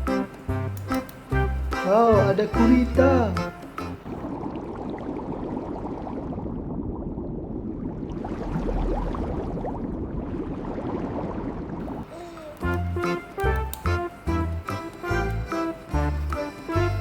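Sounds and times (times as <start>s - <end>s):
music: 0.0s - 4.1s, 12.5s - 17.0s
water sloshing and bubbling: 4.0s - 12.1s.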